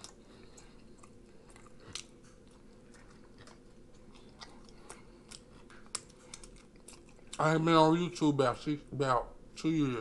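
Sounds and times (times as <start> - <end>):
quiet wet chewing clicks: 0.0 - 7.6
low room hum: 0.0 - 10.0.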